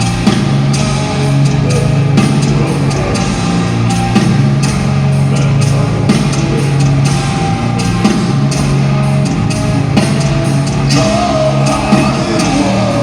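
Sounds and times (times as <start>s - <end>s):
distorted guitar chords: 0.0s - 13.0s
drums: 0.0s - 13.0s
vocals: 1.3s - 4.0s, 5.2s - 8.0s, 10.7s - 13.0s.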